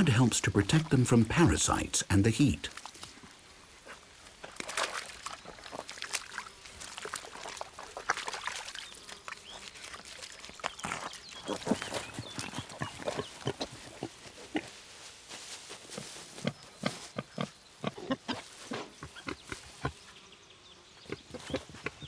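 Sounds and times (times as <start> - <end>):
wild boars grunting: 10.6 - 14.8.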